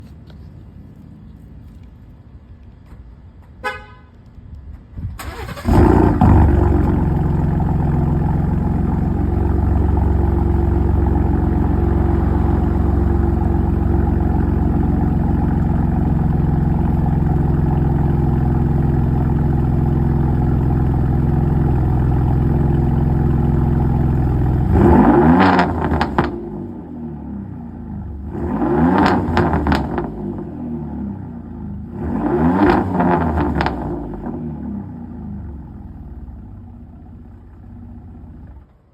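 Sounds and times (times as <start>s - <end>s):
car horn chirp: 3.6s - 4.2s
car engine starting and idling: 5.0s - 38.9s
engine revving: 5.2s - 15.8s, 23.6s - 27.4s, 28.0s - 35.4s.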